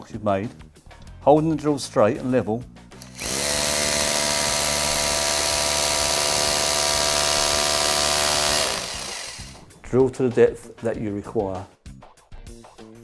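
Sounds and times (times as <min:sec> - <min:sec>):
electric drill drilling: 0:03.0 - 0:09.7.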